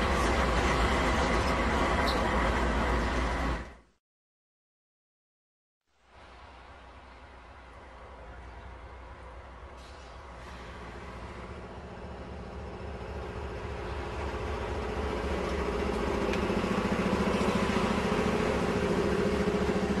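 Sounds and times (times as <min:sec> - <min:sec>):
diesel locomotive engine drone: 0:00.0 - 0:04.0, 0:06.0 - 0:20.0
snow plow rushing noise: 0:09.8 - 0:20.0.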